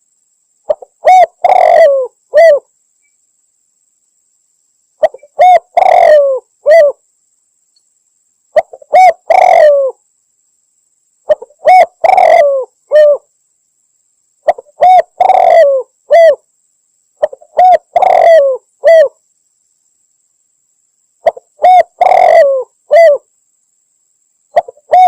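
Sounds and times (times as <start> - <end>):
dove cooing: 0.7 - 2.7, 5.0 - 7.0, 8.6 - 10.0, 11.3 - 13.2, 14.4 - 16.4, 17.2 - 19.2, 21.2 - 23.3, 24.5 - 25.0.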